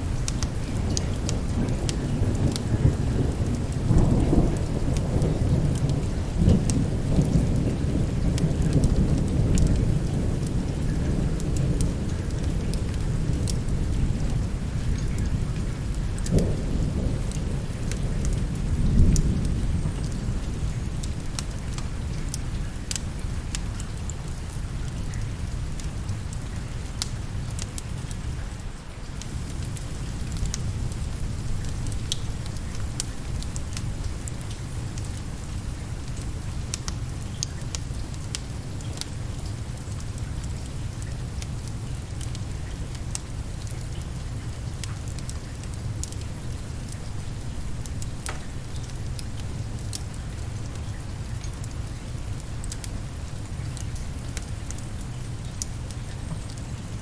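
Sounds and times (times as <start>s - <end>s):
wood fire crackling: 0.0s - 1.8s, 29.1s - 57.0s
steady rain: 0.0s - 57.0s
low roll of thunder: 0.1s - 20.7s, 29.2s - 36.0s.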